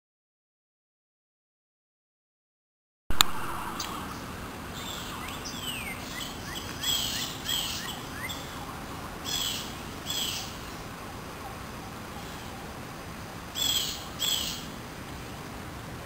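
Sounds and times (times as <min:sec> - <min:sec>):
steady background hiss: 0:03.1 - 0:16.0
wild birds singing: 0:03.2 - 0:15.6.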